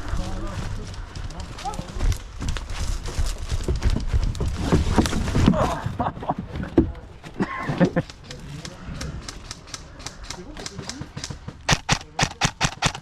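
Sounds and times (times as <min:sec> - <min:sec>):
footsteps on forest floor: 0:00.0 - 0:05.8
gear thudding and knocking: 0:01.8 - 0:05.6.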